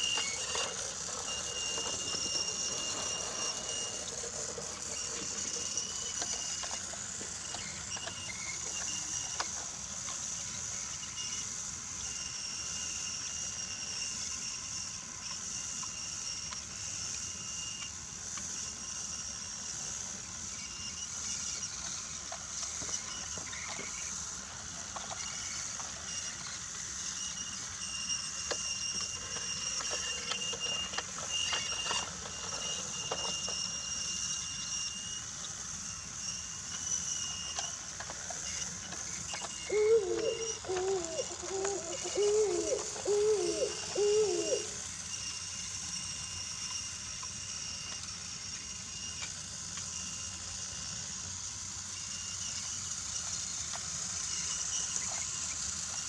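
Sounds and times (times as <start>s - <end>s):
toy train motor whine: 0.0s - 56.0s
short hooting tones: 39.6s - 44.8s.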